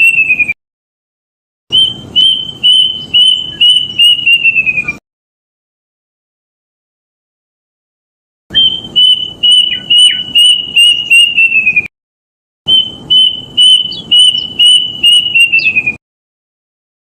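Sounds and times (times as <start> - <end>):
cuckoo whistled song: 0.0 - 0.6, 1.7 - 5.0, 8.5 - 11.9, 12.7 - 16.0.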